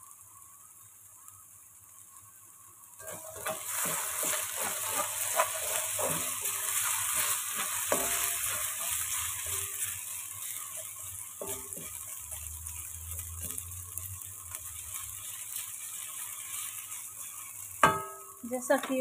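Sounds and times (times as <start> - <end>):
food sizzling in oil: 0.0 - 19.0
spatula scraping pan: 3.0 - 18.2.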